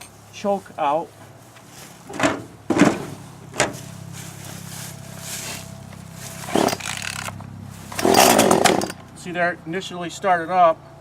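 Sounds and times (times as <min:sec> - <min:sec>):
chainsaw starter cord pulls: 0:06.4 - 0:09.1.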